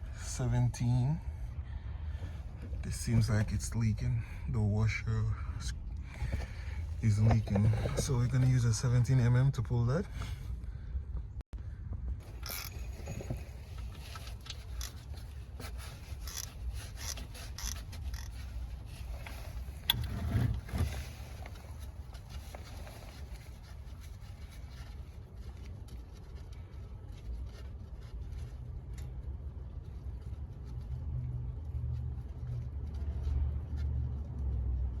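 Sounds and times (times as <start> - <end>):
low steady rumble: 0.0 - 35.0
ratchet clicking and scraping: 12.2 - 20.1.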